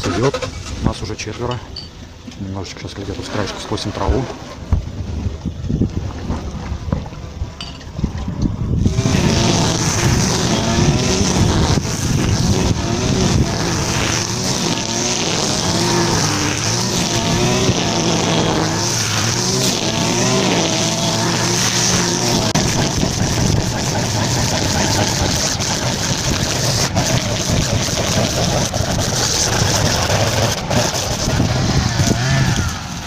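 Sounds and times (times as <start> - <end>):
grass trimmer running: 8.8 - 33.0.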